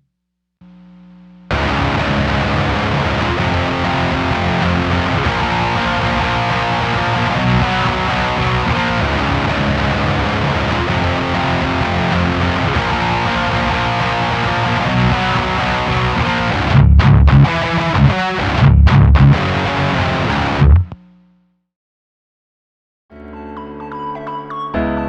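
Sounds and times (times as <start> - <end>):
distorted electric guitar riff: 1.5 - 21.4.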